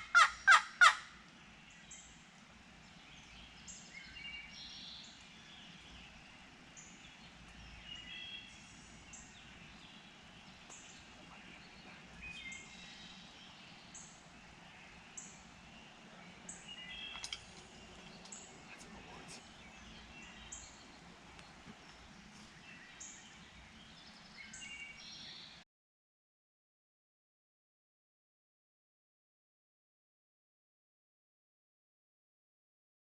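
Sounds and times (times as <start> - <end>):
songbirds chirping and singing: 0.0 - 25.6.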